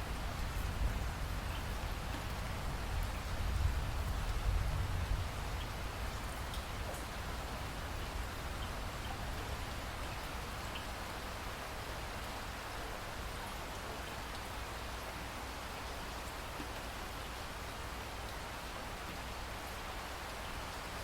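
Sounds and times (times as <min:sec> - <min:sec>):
steady rainfall: 0:00.0 - 0:21.0
faint drip ticks: 0:01.5 - 0:04.4, 0:05.5 - 0:07.4, 0:08.0 - 0:11.2, 0:13.5 - 0:14.6, 0:15.7 - 0:20.9.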